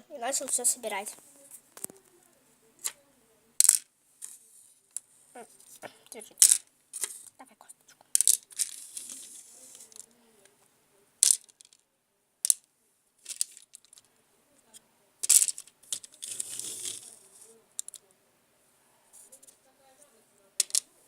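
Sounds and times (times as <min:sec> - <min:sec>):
small hard objects clattering: 0:03.6 - 0:05.0, 0:06.4 - 0:07.3, 0:08.1 - 0:10.1, 0:11.2 - 0:11.8, 0:13.2 - 0:14.1, 0:15.2 - 0:18.0, 0:20.6 - 0:20.9
rustling and scraping: 0:03.6 - 0:07.4, 0:08.1 - 0:10.1, 0:13.2 - 0:14.1, 0:15.2 - 0:18.0, 0:19.1 - 0:20.9.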